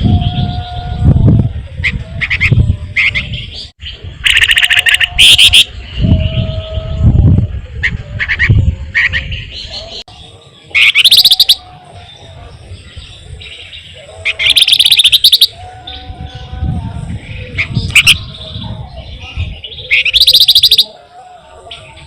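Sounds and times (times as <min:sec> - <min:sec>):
bird chirps: 0:02.4 - 0:06.6, 0:09.0 - 0:16.1, 0:17.4 - 0:18.6, 0:19.2 - 0:21.0
bird rolling trills: 0:04.2 - 0:05.7, 0:10.6 - 0:11.7, 0:14.2 - 0:15.6, 0:19.9 - 0:21.0.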